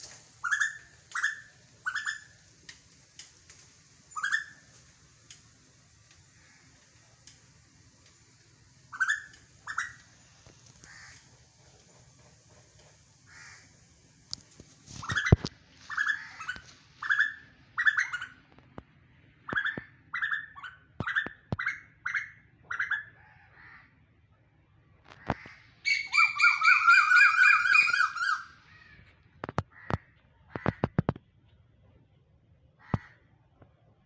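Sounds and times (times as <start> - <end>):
bird chattering rattle: 0.4 - 2.4, 4.1 - 4.6, 8.9 - 11.2, 14.8 - 18.4
harsh descending bird calls: 4.1 - 4.6, 8.9 - 10.0, 15.0 - 18.4, 25.8 - 29.0.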